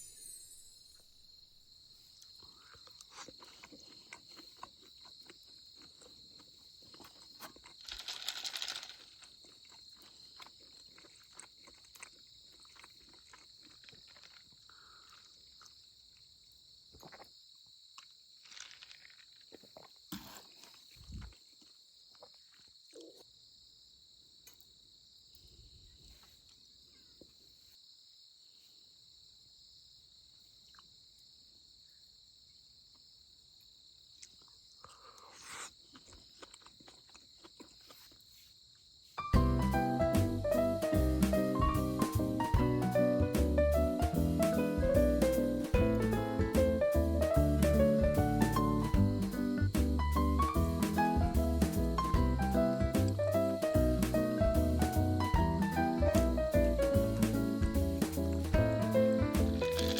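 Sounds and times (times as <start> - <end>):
crickets chirping: 0.0 - 59.9
small clicks and rustles: 7.1 - 14.6.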